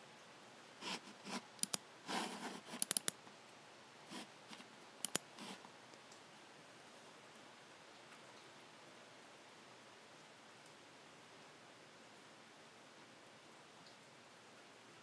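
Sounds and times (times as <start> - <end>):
computer mouse buttons clicking: 1.6 - 1.8, 2.7 - 3.2, 4.5 - 5.6.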